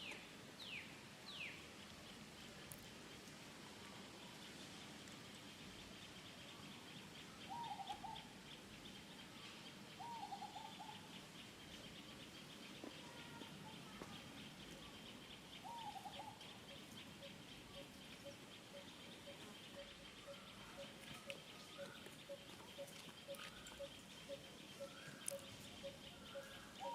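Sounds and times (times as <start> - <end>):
pulsing insect chorus: 3.9 - 26.9
wavering animal calls: 15.7 - 26.9.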